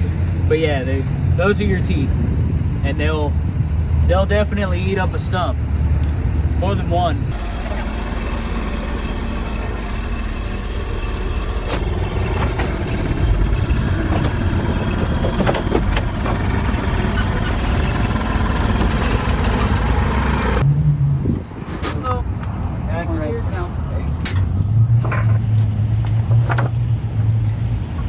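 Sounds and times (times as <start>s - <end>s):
engine idling: 0.0s - 20.6s.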